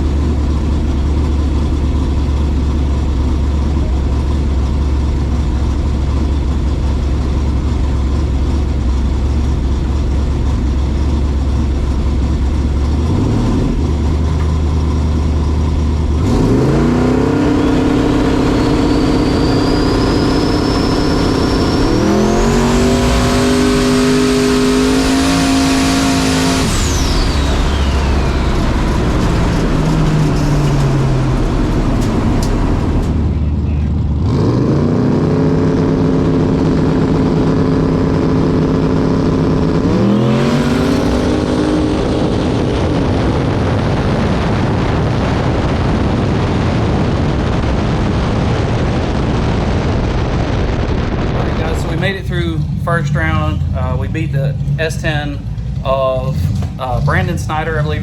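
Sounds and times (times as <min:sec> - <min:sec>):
drag car engine roaring: 0:00.0 - 0:58.0
turbo whistle: 0:17.6 - 0:24.2.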